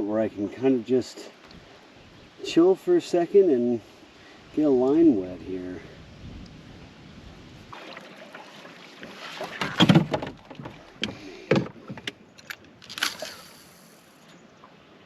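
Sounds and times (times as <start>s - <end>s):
paddle strokes splashing: 7.7s - 12.0s
paddle knocking against hull: 7.8s - 12.2s.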